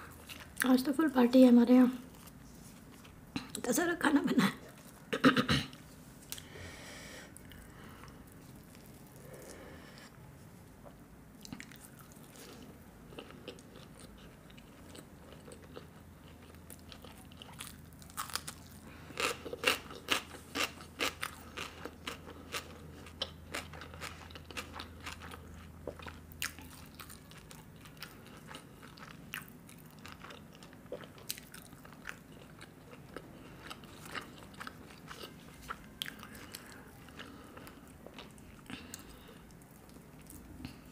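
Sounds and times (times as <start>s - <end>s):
woman chewing crunchy food: 11.4s - 40.9s.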